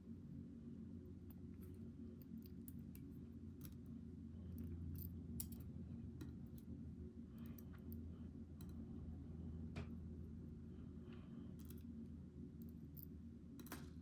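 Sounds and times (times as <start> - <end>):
steady low hum: 0.0 - 14.0
metal lock parts clicking: 4.6 - 6.7, 12.6 - 14.0.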